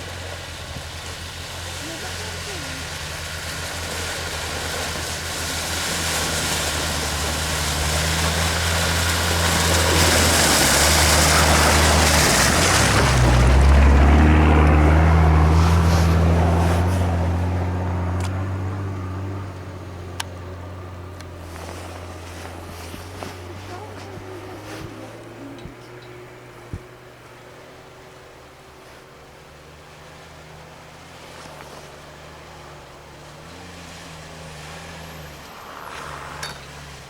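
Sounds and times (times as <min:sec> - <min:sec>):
off-road engine under load: 0:00.0 - 0:37.0
loud hissing rush: 0:35.1 - 0:36.5.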